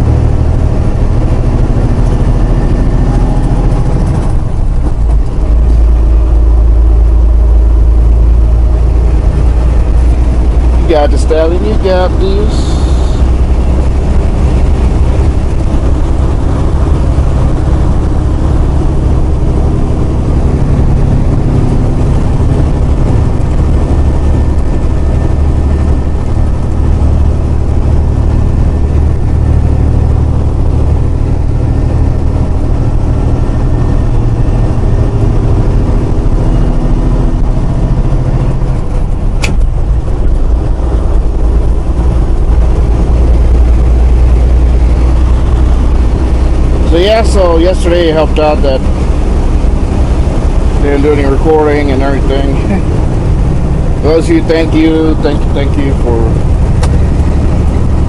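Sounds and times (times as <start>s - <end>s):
diesel truck engine droning: 0.0s - 58.0s
sharp click: 39.4s - 39.7s.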